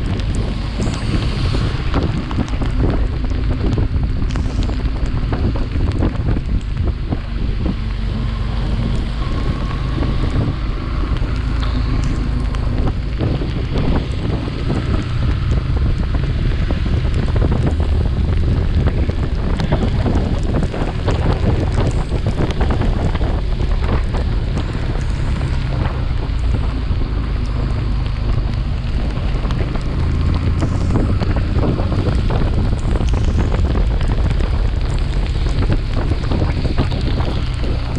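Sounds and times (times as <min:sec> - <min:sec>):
motorcycle engine humming: 0:00.0 - 0:37.9
wind buffeting microphone: 0:00.0 - 0:37.9.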